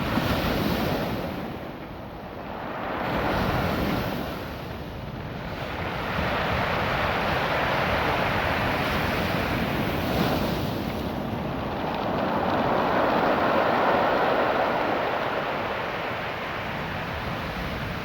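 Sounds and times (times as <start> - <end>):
waves washing over rocks: 5.4 - 18.0.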